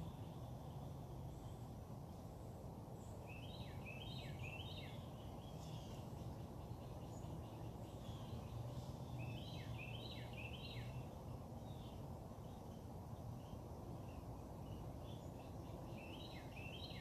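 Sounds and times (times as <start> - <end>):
faint bird chirps: 0.0 - 17.0
low background hum: 0.0 - 17.0
songbird singing: 0.0 - 17.0.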